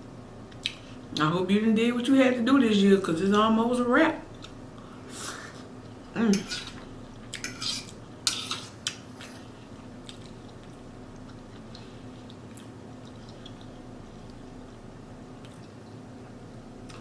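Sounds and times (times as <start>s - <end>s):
steady low hum: 0.0s - 17.0s
faint chewing: 8.7s - 17.0s.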